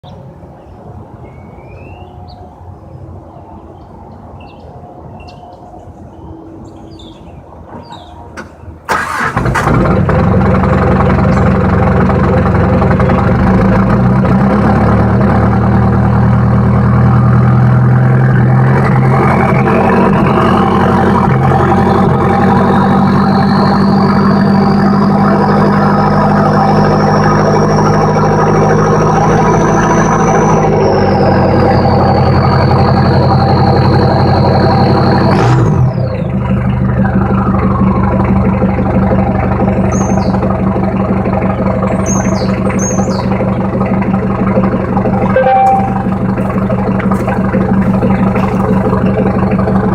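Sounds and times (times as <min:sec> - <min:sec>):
diesel engine idling rough: 0:08.0 - 0:49.9
high whine: 0:43.3 - 0:49.9.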